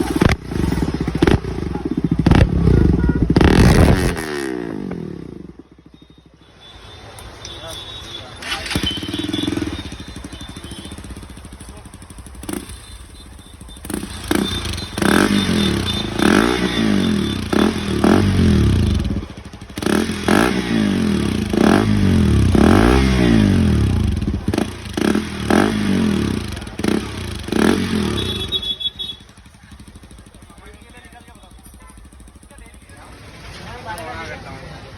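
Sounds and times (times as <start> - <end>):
exhaust cracks: 0.0 - 4.9, 8.3 - 28.5
motorcycle engine revving: 0.0 - 6.5, 7.1 - 34.6.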